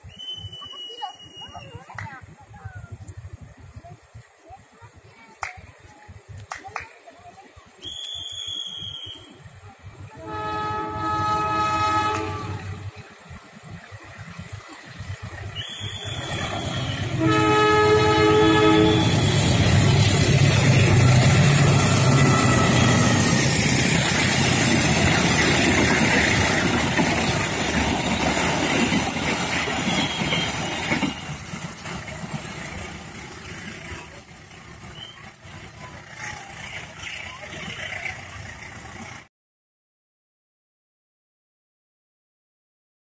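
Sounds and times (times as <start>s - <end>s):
train passing with clatter: 0.0s - 39.3s
train horn blast: 10.1s - 13.0s, 15.7s - 23.6s, 29.8s - 31.4s.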